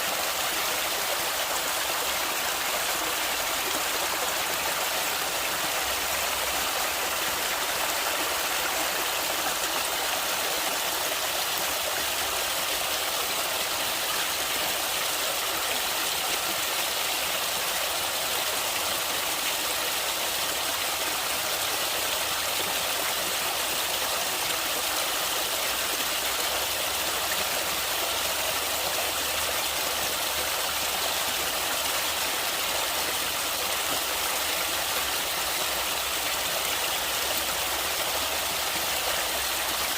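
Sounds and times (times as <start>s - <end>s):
stream rushing: 0.0s - 18.1s.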